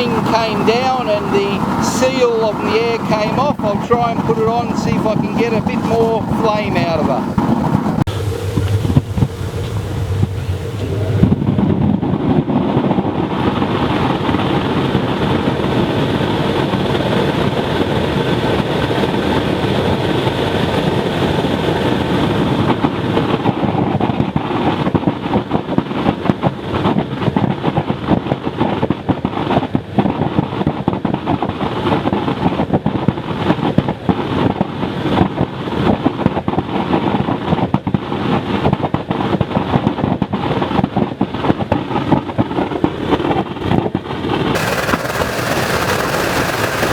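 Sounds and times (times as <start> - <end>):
burner flame roaring: 0.0 - 27.9, 29.5 - 46.9
crackling pops in flame: 44.5 - 46.9.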